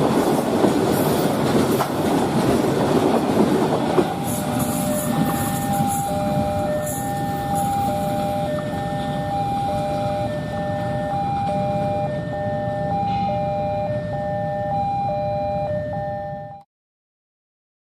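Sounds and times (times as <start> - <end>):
two-tone crossing alarm: 3.9 - 16.7.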